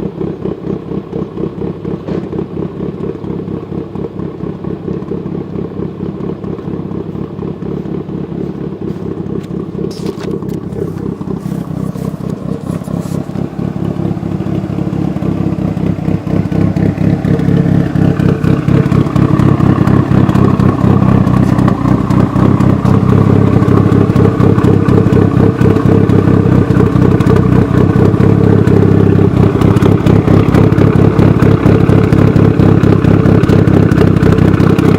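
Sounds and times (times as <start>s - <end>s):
deep car exhaust note: 0.0s - 34.9s.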